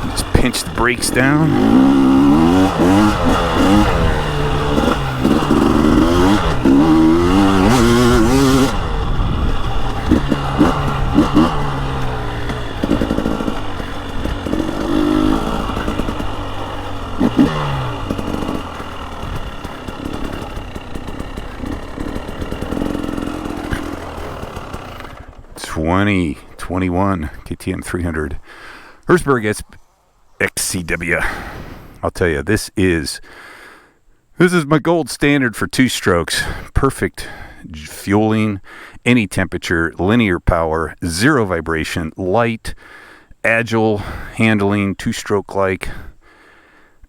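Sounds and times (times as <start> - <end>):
motorcycle clattering on trail: 0.0 - 29.2
two-stroke motorcycle engine revving: 0.0 - 29.3.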